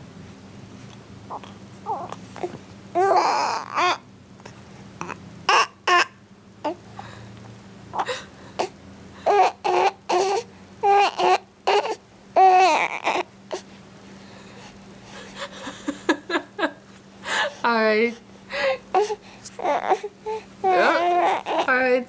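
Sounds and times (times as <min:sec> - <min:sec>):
baby crying and babbling: 0:01.3 - 0:04.0, 0:05.0 - 0:06.8, 0:08.0 - 0:13.6, 0:18.9 - 0:21.8.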